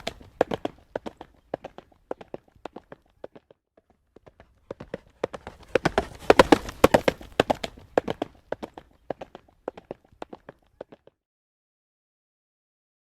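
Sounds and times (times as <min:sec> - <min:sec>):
horse hooves clip-clopping on road: 0:00.0 - 0:03.5, 0:04.2 - 0:11.1.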